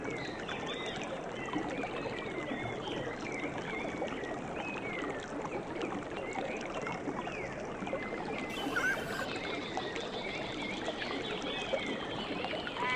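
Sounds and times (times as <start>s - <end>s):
small birds chirping: 8.5s - 9.3s
running water rushing: 8.5s - 9.4s, 11.9s - 12.9s.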